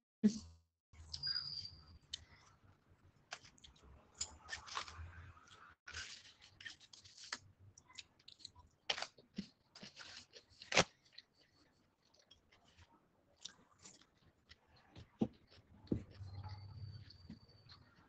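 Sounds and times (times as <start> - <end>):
person chewing crunchy food: 3.3 - 16.4.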